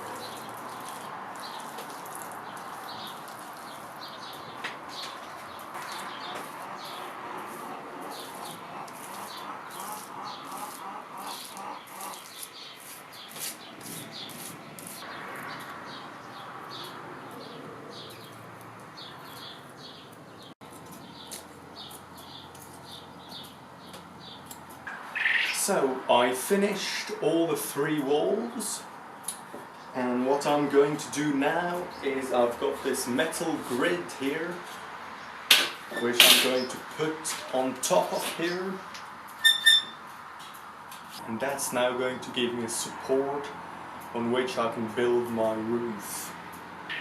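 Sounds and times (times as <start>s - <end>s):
small birds chirping: 0.0s - 25.8s, 45.1s - 47.0s.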